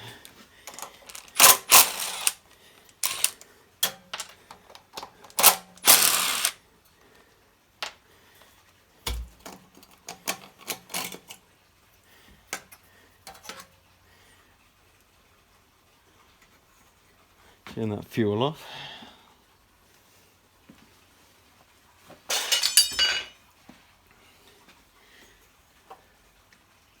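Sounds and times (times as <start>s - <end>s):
clicks and clatter of parts: 0.2s - 6.6s, 9.1s - 11.4s, 22.3s - 23.4s.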